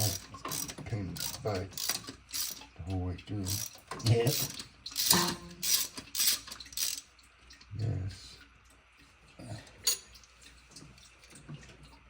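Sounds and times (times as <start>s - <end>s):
metallic clicks of hand tools: 0.0s - 2.6s, 3.5s - 7.0s.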